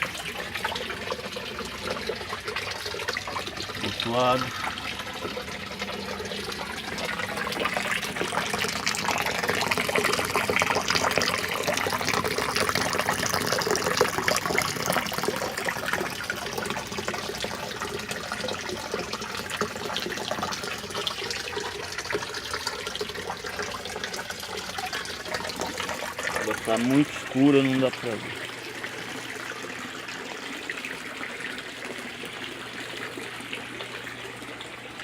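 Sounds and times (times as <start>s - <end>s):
water running and splashing: 0.0s - 35.0s.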